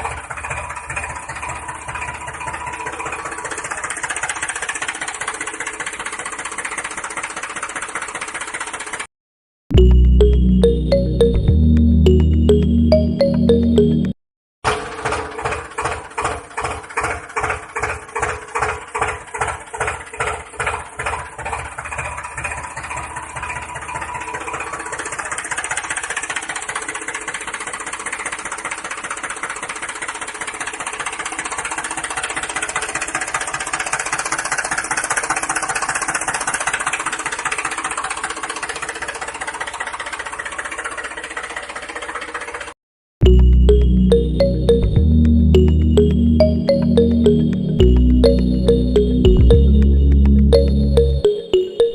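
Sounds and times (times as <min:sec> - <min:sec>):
tractor engine chugging: 0:00.0 - 0:09.0, 0:14.7 - 0:43.8.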